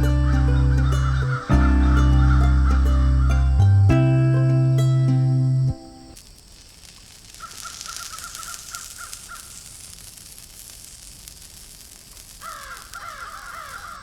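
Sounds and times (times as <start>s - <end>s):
bird calling short notes: 0.0s - 4.9s
high outdoor hiss: 0.0s - 14.0s.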